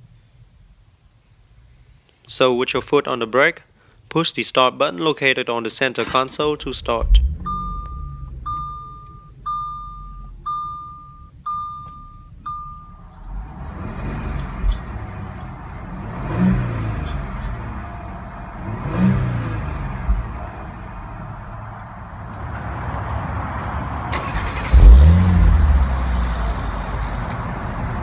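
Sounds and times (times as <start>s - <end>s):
car engine starting and idling: 6.0s - 28.0s
engine revving: 6.4s - 10.7s, 12.9s - 21.9s, 22.5s - 28.0s
dashboard chime: 7.2s - 13.2s.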